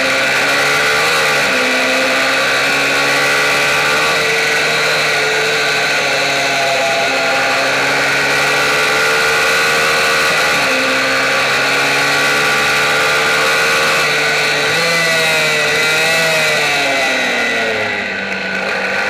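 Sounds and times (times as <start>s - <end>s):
minibike engine at high revs: 0.0s - 19.0s.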